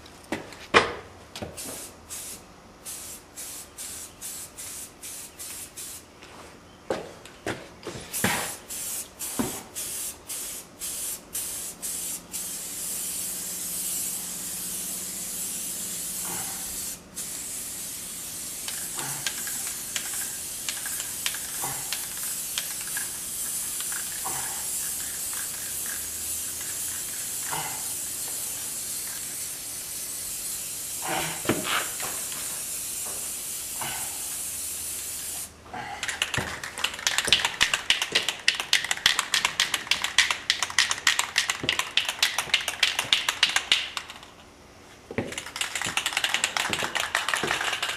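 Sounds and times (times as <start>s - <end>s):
spray can hissing: 1.6s - 6.0s, 8.1s - 35.5s, 36.1s - 44.2s, 45.3s - 47.9s.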